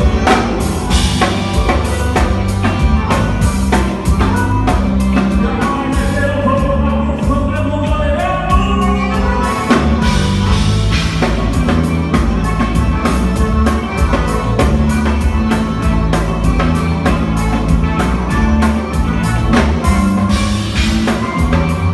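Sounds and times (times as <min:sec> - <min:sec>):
dance band playing: 0:00.0 - 0:21.9
drum kit beat: 0:00.0 - 0:21.9.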